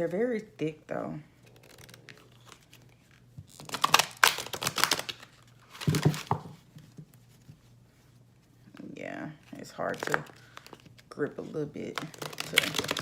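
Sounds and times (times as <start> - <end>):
cards being shuffled: 1.4 - 7.5, 9.5 - 13.0.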